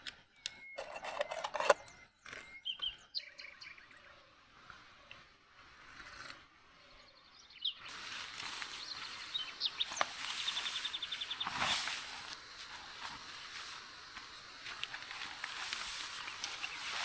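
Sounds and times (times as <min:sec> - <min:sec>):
birds chirping: 0:00.0 - 0:17.0
bird trill: 0:00.1 - 0:04.2, 0:07.0 - 0:11.9
outdoor background hiss: 0:02.6 - 0:17.0
rustling scrape: 0:07.9 - 0:13.9, 0:14.7 - 0:17.0.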